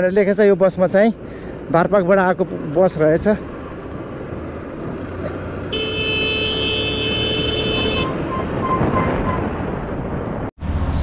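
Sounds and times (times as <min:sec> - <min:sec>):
engine and road noise: 0:00.0 - 0:11.0
vehicle horn: 0:05.7 - 0:09.1.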